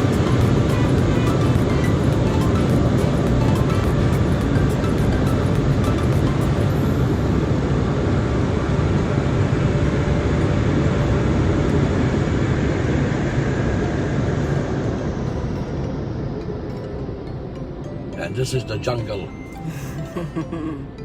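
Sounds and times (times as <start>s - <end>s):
car wash machinery roaring: 0.0s - 16.2s.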